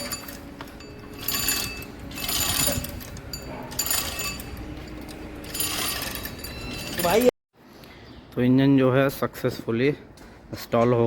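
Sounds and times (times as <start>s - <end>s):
metallic clinking and rattling: 0.0s - 7.3s.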